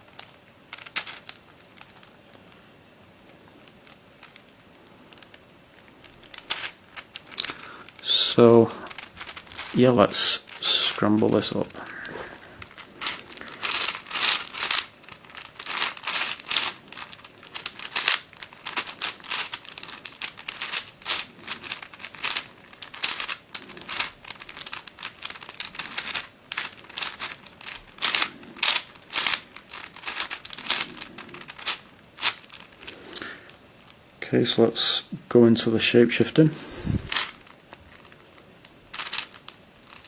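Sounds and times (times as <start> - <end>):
twisty puzzle clicking: 8.9 - 33.0.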